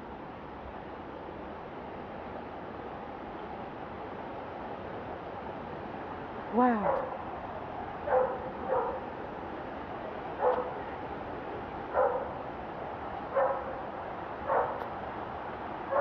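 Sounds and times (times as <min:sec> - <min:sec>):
steady background noise: 0:00.0 - 0:16.0
dog barking: 0:06.8 - 0:07.2, 0:08.0 - 0:09.1, 0:10.4 - 0:10.8, 0:11.9 - 0:12.3, 0:13.3 - 0:13.8, 0:14.5 - 0:14.8.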